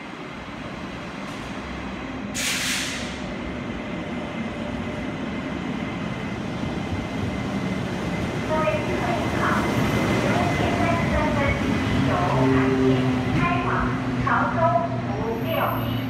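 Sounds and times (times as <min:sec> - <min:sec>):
train rumbling: 0:00.0 - 0:16.0
sharp hiss: 0:02.4 - 0:03.2.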